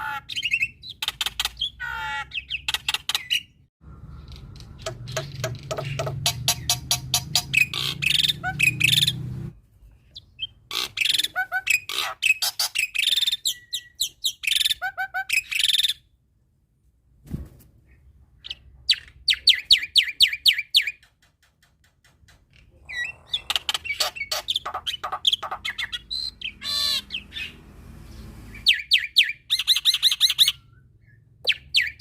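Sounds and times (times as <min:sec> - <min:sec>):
bird singing chattering notes: 0:04.2 - 0:09.3, 0:22.6 - 0:27.6.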